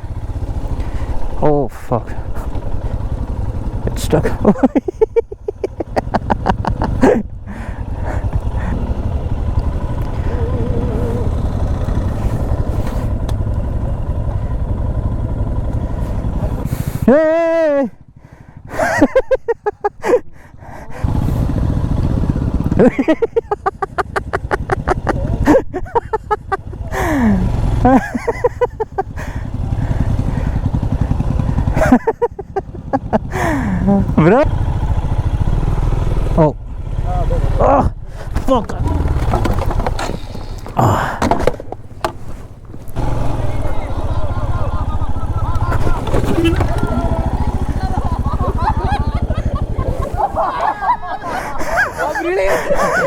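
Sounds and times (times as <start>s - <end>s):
motorcycle engine chugging: 0.0s - 53.0s
person calling out: 10.1s - 11.7s.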